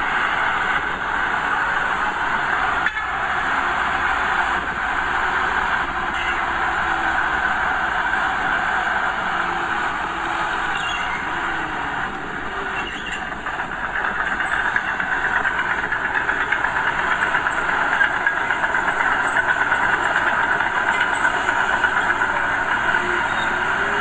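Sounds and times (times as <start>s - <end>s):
diesel engine running roughly: 0.0s - 24.0s.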